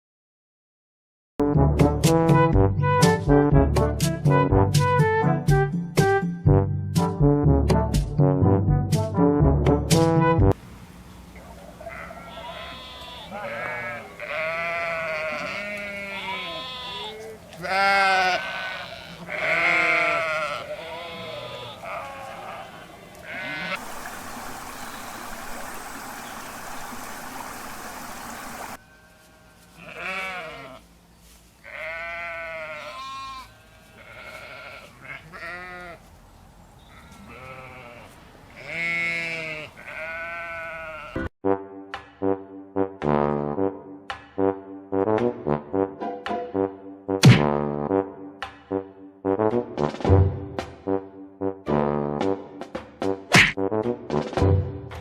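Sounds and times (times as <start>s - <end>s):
sheep bleating: 11.8s - 23.8s, 28.8s - 30.9s, 31.6s - 36.1s, 36.8s - 41.3s
steady hiss: 23.8s - 28.8s.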